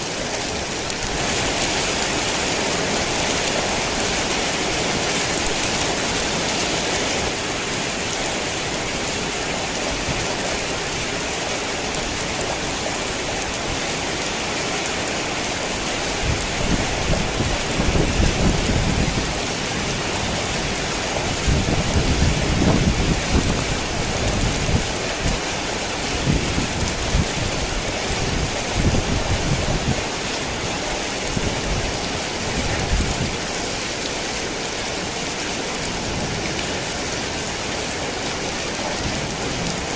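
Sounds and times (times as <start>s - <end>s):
heavy rain hissing: 0.0s - 39.9s
rolling thunder rumbles: 16.2s - 25.5s.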